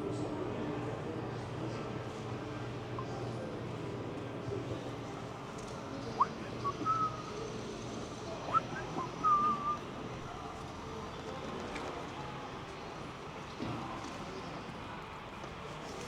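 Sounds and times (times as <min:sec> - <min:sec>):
low background noise: 0:00.0 - 0:16.0
short high whistles: 0:06.2 - 0:07.4, 0:08.5 - 0:09.8.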